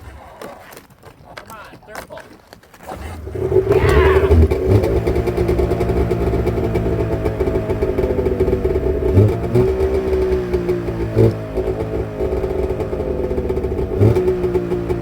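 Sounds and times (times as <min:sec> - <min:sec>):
snowmobile engine running: 0:02.8 - 0:15.0.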